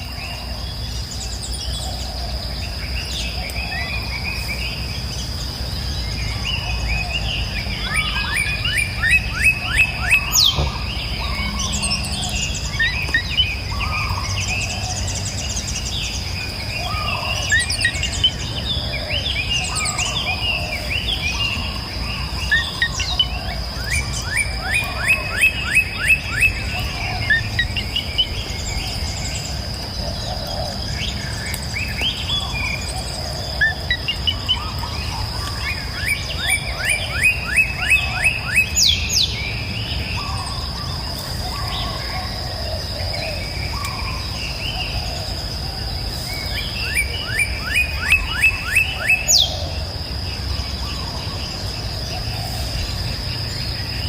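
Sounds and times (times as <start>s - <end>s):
songbirds chirping and singing: 0.0s - 54.0s.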